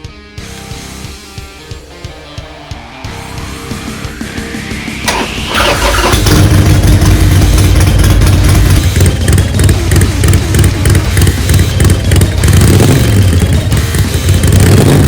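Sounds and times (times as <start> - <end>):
motorcycle engine rumbling: 0.7 - 15.0
starter motor whine: 3.6 - 13.6.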